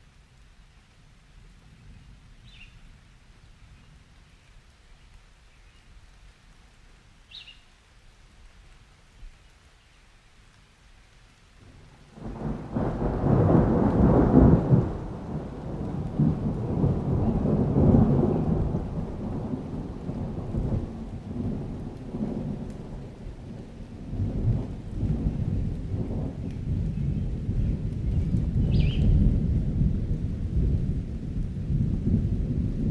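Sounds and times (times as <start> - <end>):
soft rain: 0.0 - 32.9
bird chirp: 7.3 - 7.7, 28.6 - 29.1
rolling thunder: 11.8 - 32.9.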